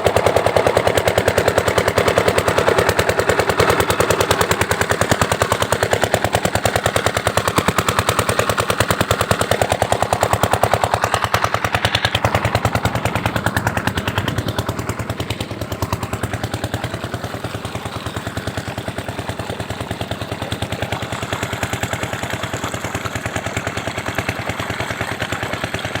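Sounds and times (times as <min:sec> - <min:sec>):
diesel pump engine running: 0:00.0 - 0:26.0.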